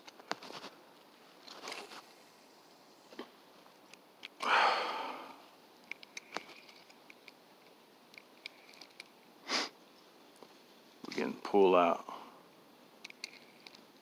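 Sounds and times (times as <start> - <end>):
person breathing: 4.4 - 5.5
person sniffing: 9.4 - 9.8.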